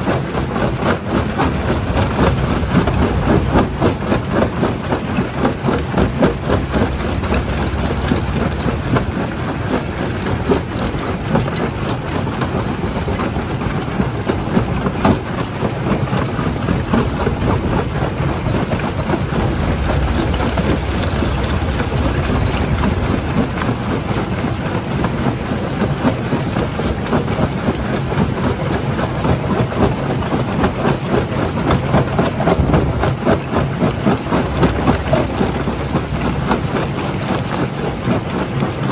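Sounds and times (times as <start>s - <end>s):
heavy machine rumble: 0.0s - 38.9s.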